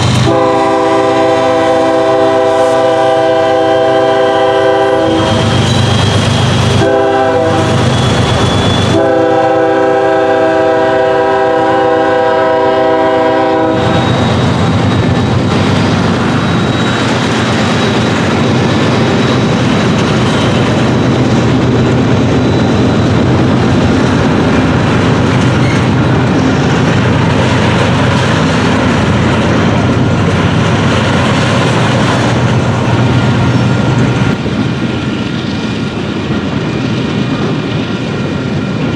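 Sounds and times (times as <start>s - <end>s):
train passing with wheel noise: 0.0s - 38.9s
locomotive horn blasts: 0.1s - 5.5s, 6.7s - 8.2s, 8.8s - 14.4s.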